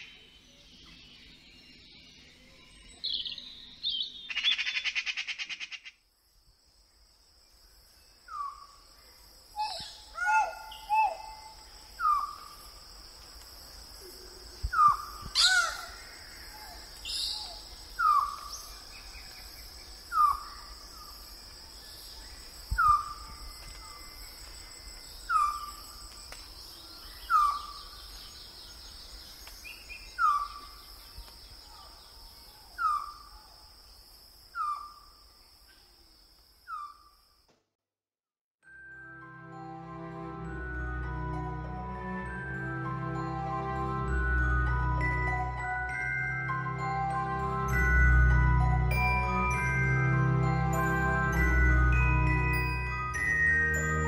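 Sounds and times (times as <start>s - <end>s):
bird call notes: 9.6s - 12.6s.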